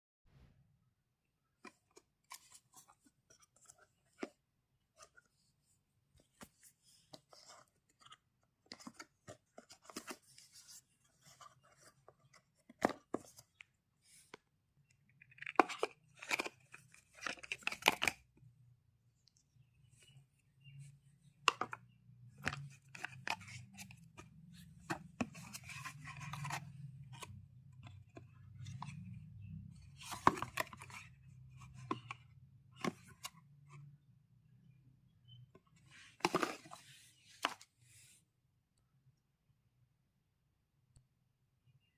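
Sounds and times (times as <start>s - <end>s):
packaging clicks and taps: 21.3s - 28.9s.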